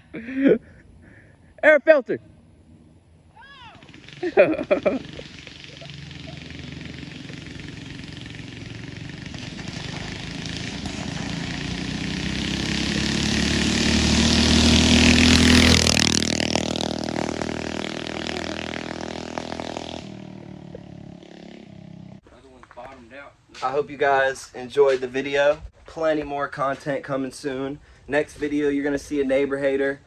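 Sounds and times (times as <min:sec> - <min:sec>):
minibike engine passing by: 0:02.2 - 0:22.2.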